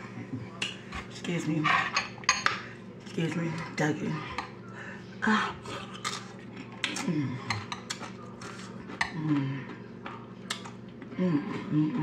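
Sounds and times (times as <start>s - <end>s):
chip crunching: 5.8s - 9.1s
person humming: 11.1s - 12.0s
person saying mmm: 11.1s - 12.0s.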